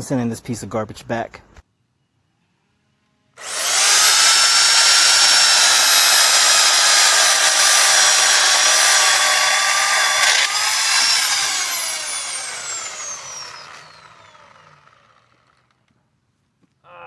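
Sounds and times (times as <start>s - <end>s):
electric chainsaw whining: 3.4s - 15.8s.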